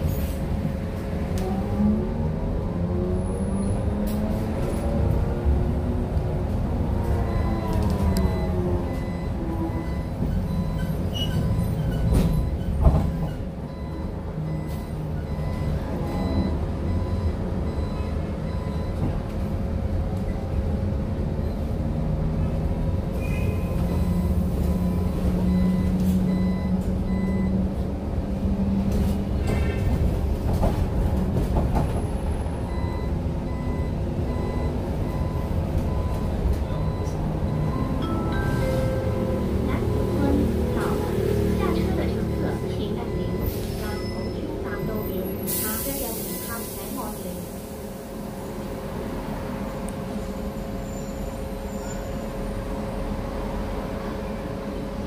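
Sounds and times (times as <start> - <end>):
bus engine rumble and hum: 0.0 - 55.0
faint high beep: 42.2 - 44.9.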